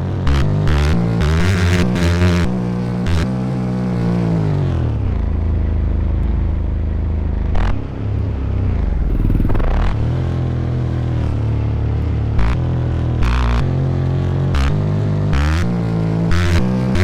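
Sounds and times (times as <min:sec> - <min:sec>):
dirt bike engine revving: 0:07.5 - 0:10.2.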